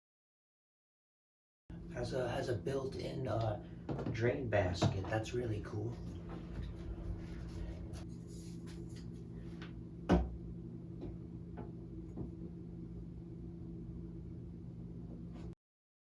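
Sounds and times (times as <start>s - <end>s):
steady low hum: 1.7s - 15.6s.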